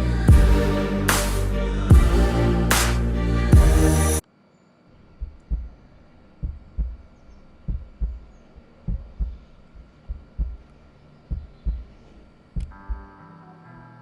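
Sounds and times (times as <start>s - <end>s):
slow heartbeat thumps: 5.1s - 13.2s.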